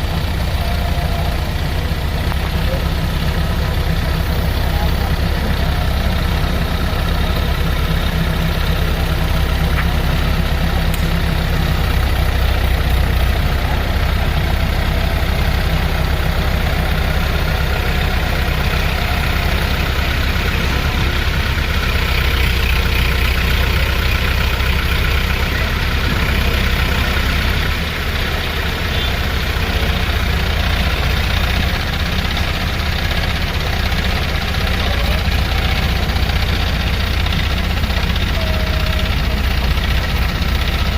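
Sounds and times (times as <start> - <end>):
diesel excavator idling: 0.0 - 40.9.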